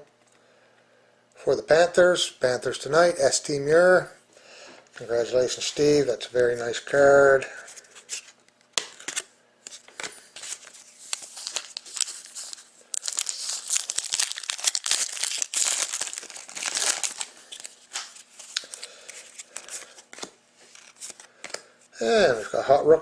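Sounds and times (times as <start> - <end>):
card pack wrappers crinkling: 7.8 - 21.6.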